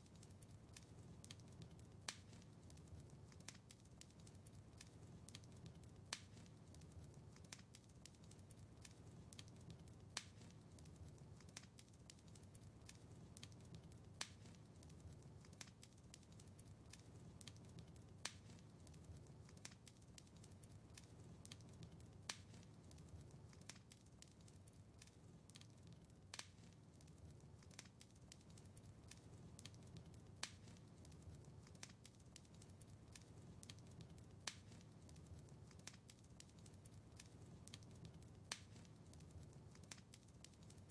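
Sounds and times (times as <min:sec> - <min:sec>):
low rumble of flames: 0:00.0 - 0:40.9
wood fire crackling: 0:00.0 - 0:40.9.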